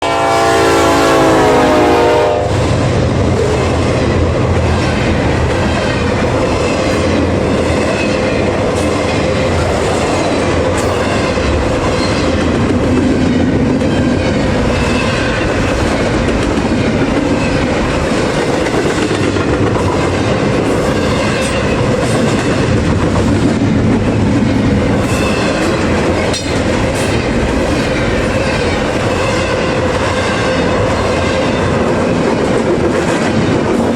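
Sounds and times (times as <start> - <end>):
locomotive horn: 0.0 - 2.8
freight train rolling past: 0.0 - 33.9.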